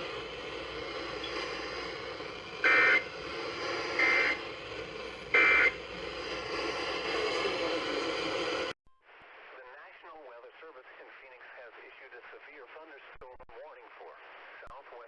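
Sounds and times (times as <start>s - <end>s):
radio static hiss: 0.0s - 15.0s
two-tone digital data bursts: 2.6s - 3.1s, 5.3s - 5.8s.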